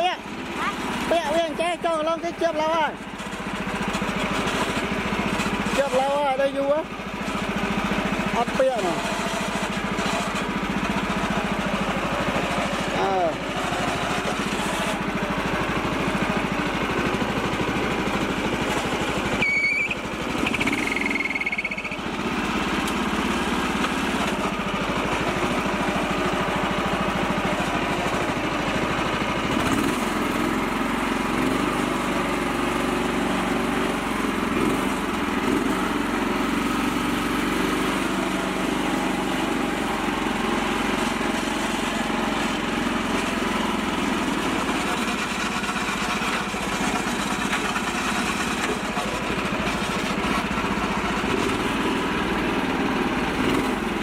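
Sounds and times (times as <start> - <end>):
tractor engine running: 0.0 - 54.0
high squeal: 19.4 - 22.0.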